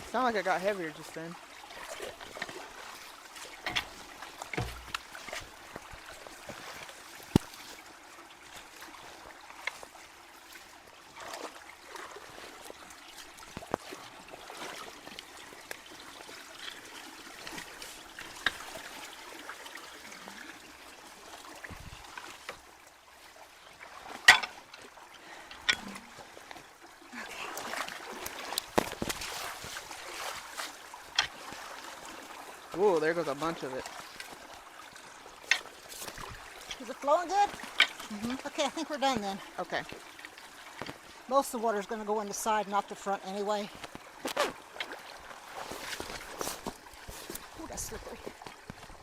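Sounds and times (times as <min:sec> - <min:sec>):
water trickling into culvert: 0:00.0 - 0:49.0.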